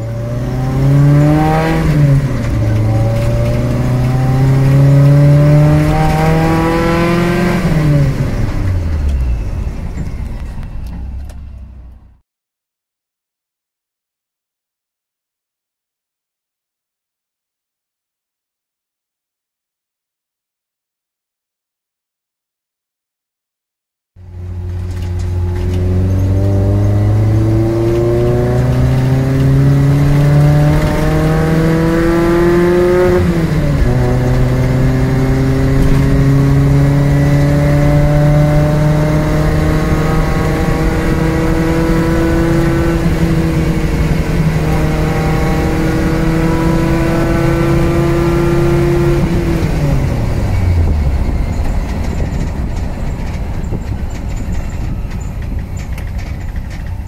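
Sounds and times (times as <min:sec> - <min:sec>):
car engine revving: 0:00.0 - 0:12.2, 0:24.2 - 0:57.0.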